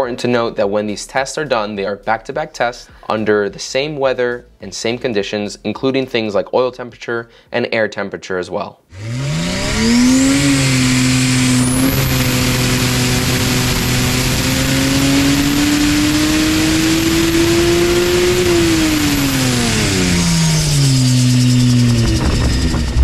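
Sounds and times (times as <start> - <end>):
engine revving on dyno: 8.9 - 23.0
turbo whine: 8.9 - 23.0.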